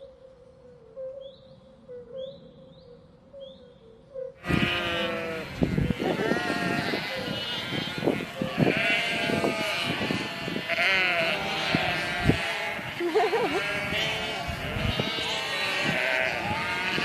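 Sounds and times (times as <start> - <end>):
livestock bleating: 4.4 - 17.0.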